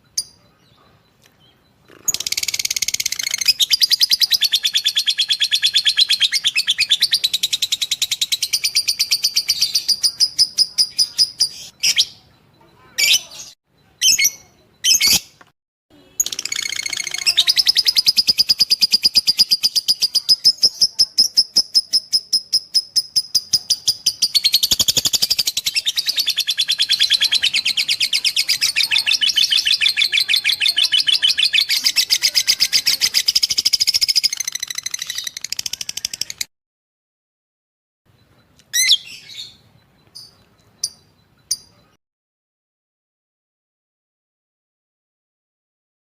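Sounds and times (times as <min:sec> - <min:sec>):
lovebird chattering trill: 0:01.5 - 0:12.3, 0:16.1 - 0:36.5, 0:38.7 - 0:42.0.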